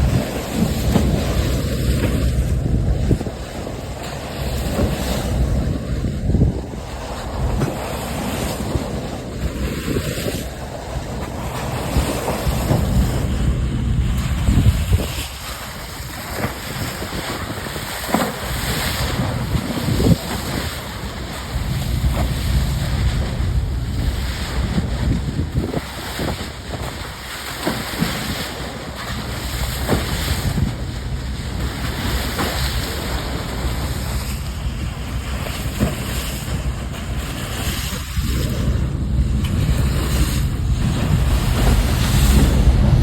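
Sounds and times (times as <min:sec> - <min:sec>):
rushing water: 0:00.0 - 0:43.0
ship low rumble: 0:00.0 - 0:43.0
wind buffeting microphone: 0:00.0 - 0:43.0
water splash: 0:11.3 - 0:43.0.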